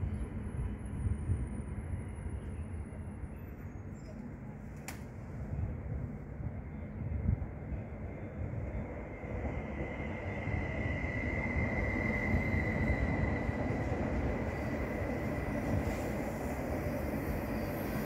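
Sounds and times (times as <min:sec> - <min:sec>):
train wheels rumbling on rails: 0:07.1 - 0:18.0.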